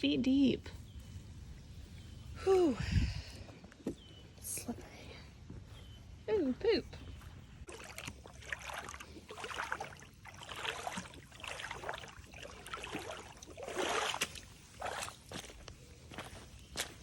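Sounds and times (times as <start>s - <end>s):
footsteps splashing through water: 7.6s - 17.0s.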